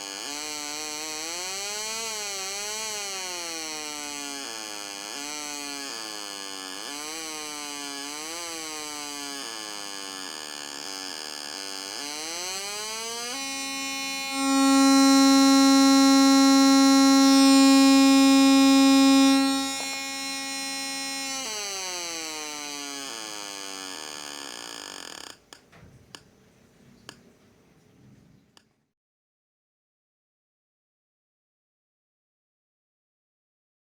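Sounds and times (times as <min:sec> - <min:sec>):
electronic alarm wail: 0:12.3 - 0:22.0.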